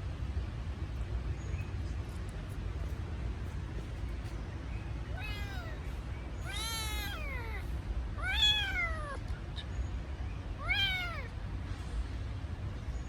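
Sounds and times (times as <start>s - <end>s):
kitten meowing: 5.1s - 9.2s, 10.6s - 11.3s.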